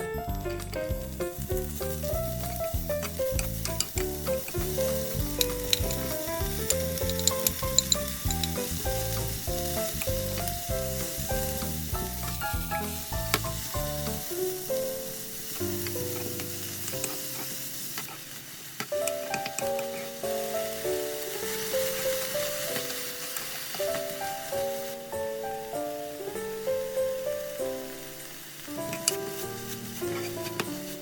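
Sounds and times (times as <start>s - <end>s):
background music with a beat: 0.0s - 14.3s
food sizzling in a pan: 0.0s - 31.0s.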